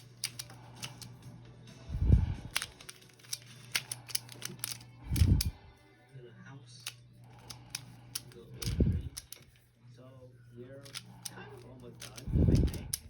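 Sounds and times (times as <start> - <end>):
puzzle cube clicking: 0.0 - 1.1, 2.4 - 5.6, 6.8 - 9.5, 10.8 - 13.0.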